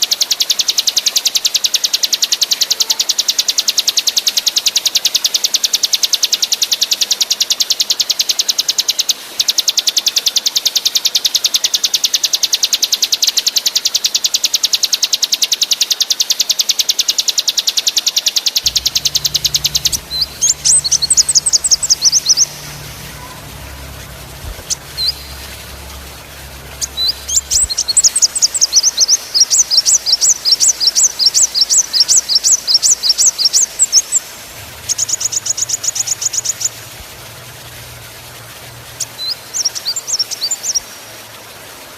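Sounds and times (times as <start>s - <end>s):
sharp downward-sweeping bird notes: 18.6s - 40.8s
songbird buzzing trill: 18.6s - 40.8s.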